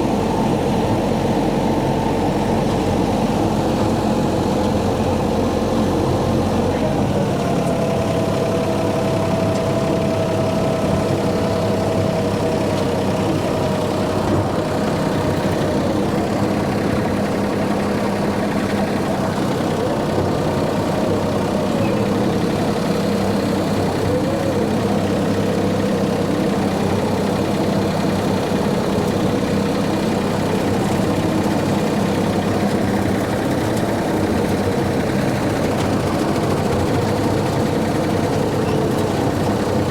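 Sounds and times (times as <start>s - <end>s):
tractor engine running: 0.0s - 39.9s
rotary mower cutting weeds: 0.1s - 39.9s.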